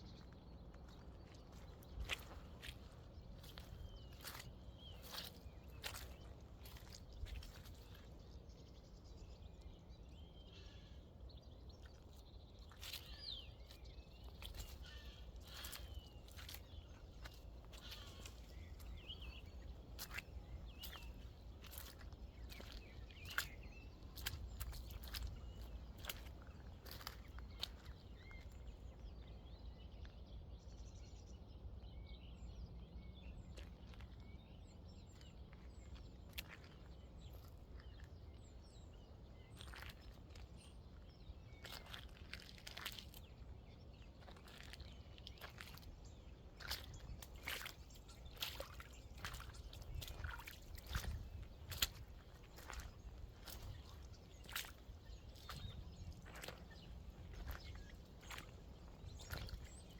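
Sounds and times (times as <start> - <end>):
bird chirps: 0.0 - 29.2, 44.3 - 59.9
crunching rustles: 46.6 - 59.9.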